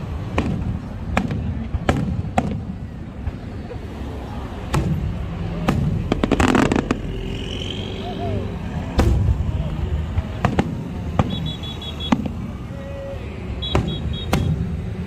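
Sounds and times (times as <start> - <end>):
fireworks bangs: 0.0 - 3.6, 4.6 - 7.6, 8.8 - 12.7, 13.6 - 14.8
rapid crackling fireworks: 0.0 - 7.6, 8.8 - 15.0.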